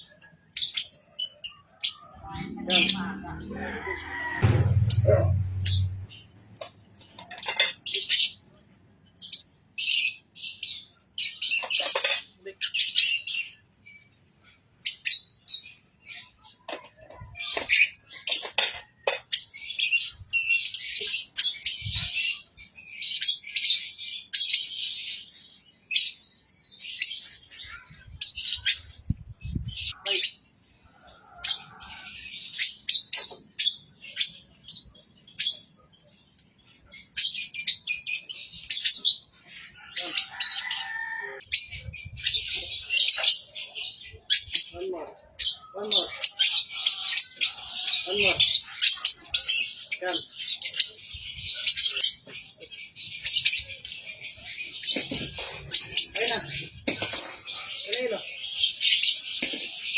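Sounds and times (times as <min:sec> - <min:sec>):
low rumble: 0:02.2 - 0:06.3.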